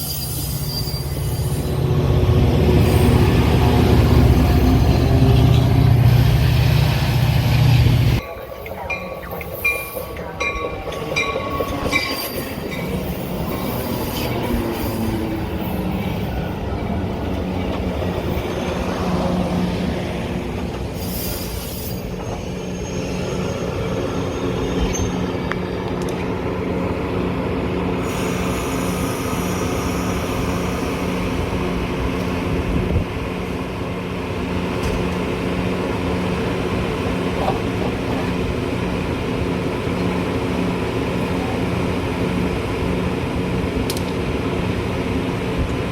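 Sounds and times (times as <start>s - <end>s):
wheel squeal: 0.0s - 1.7s, 21.0s - 25.4s
train rumbling on rails: 0.0s - 45.9s.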